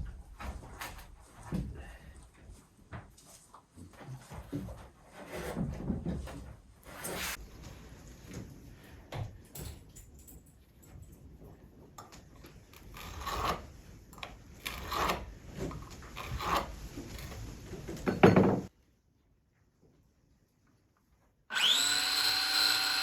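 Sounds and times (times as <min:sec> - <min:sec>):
wood knocking and scraping on wood: 0:02.9 - 0:07.4, 0:14.2 - 0:18.7.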